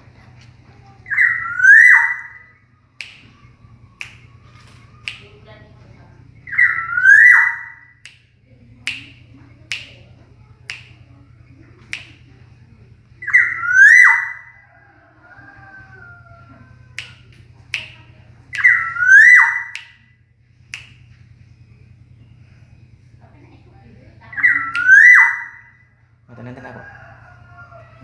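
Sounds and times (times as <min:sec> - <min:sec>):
steady low hum: 0:00.0 - 0:28.0
bird giving fluty whistled calls: 0:01.1 - 0:05.3, 0:06.4 - 0:08.1, 0:13.2 - 0:14.6, 0:18.5 - 0:20.0, 0:24.3 - 0:25.8
sharp single clicks: 0:03.0 - 0:05.4, 0:08.0 - 0:08.3, 0:08.9 - 0:10.1, 0:10.7 - 0:11.1, 0:11.8 - 0:12.3, 0:20.7 - 0:21.2.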